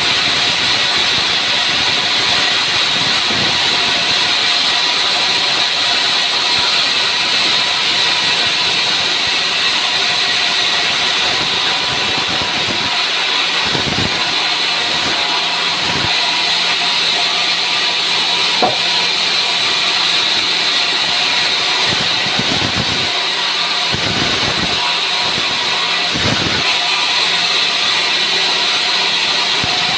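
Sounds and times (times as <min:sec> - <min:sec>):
low thuds: 0:18.6 - 0:19.0.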